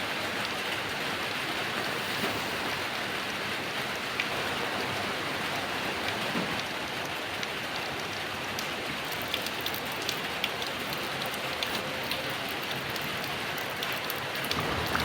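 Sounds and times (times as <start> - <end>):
heavy rain falling: 0.0 - 15.0
sharp raindrop hits: 14.4 - 15.0.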